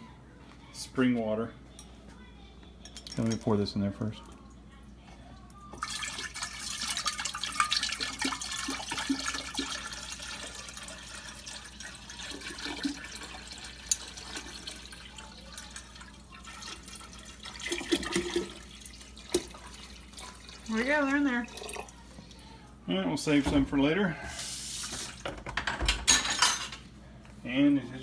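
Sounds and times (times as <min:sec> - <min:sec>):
water pouring into tank: 0:05.8 - 0:22.4.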